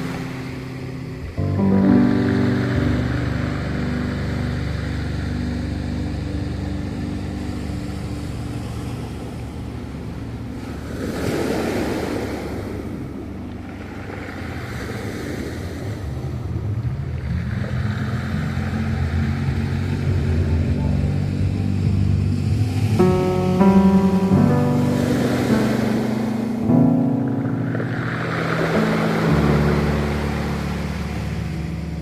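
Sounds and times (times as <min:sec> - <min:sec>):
ocean waves breaking: 0:00.0 - 0:32.0
soft background music: 0:00.0 - 0:32.0.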